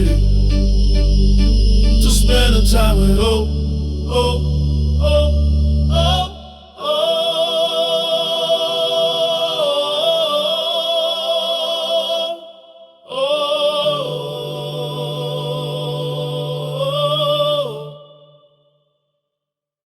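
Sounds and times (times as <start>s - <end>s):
low bass tone: 0.0s - 6.5s
person singing with vibrato: 0.0s - 18.5s.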